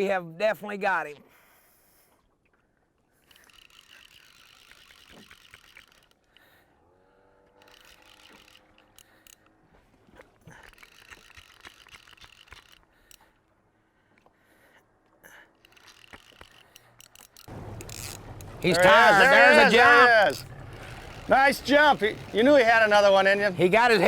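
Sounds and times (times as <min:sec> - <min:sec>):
fishing reel clicking: 0:03.2 - 0:06.6, 0:07.5 - 0:09.6, 0:10.5 - 0:13.4, 0:15.3 - 0:18.5, 0:20.0 - 0:24.0.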